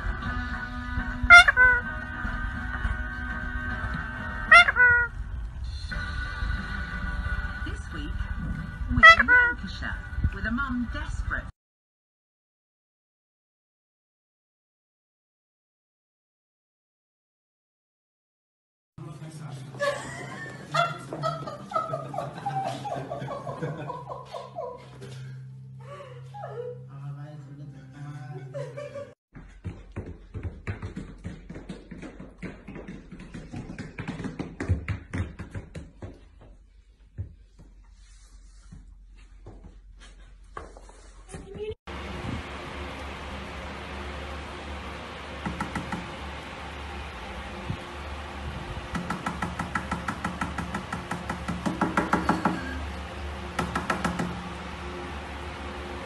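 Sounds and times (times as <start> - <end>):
booted dog paws tapping on floor: 29.4 - 37.8.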